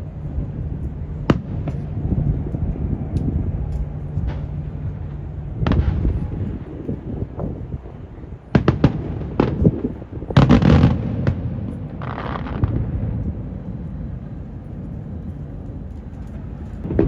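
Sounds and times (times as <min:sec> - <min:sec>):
wind buffeting microphone: 0:00.0 - 0:17.0
fireworks bursting: 0:01.1 - 0:13.4.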